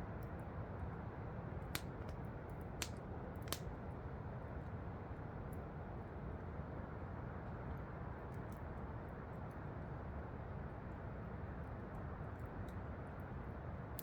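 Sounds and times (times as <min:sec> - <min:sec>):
campfire crackling: 0:01.6 - 0:03.7.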